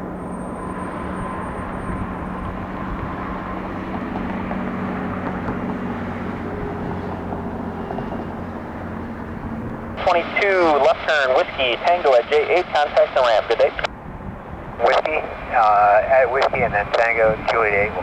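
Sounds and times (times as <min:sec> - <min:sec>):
jet airliner engines rumbling: 0:00.0 - 0:18.0.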